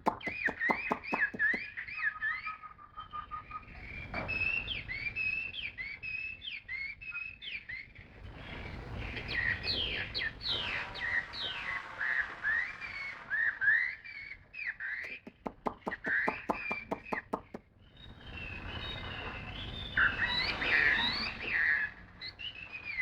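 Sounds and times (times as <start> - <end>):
sharp clicks: 0.0 - 1.6, 15.1 - 17.6
songbird singing: 15.0 - 17.6.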